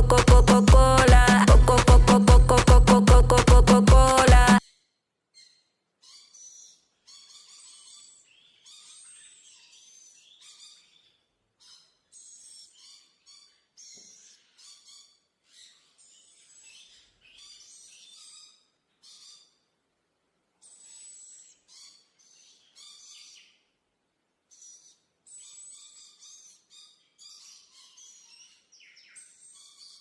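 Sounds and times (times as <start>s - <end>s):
parrots chirping and chattering: 4.6s - 19.8s, 20.6s - 23.6s, 24.5s - 30.0s.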